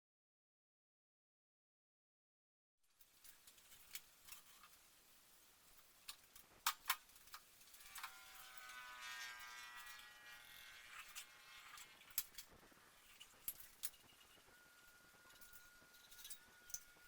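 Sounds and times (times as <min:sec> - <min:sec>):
small electric motor whirring: 0:07.7 - 0:17.0.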